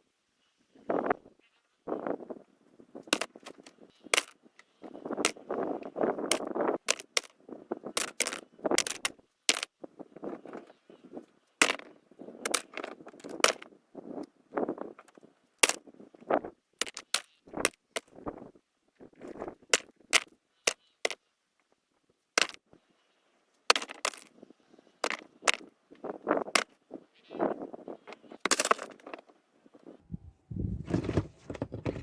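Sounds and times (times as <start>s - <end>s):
stones clacking together: 6.2s - 7.3s, 8.0s - 9.7s, 16.8s - 18.4s, 23.7s - 24.3s
rocks scraping and shuffling: 23.7s - 32.0s.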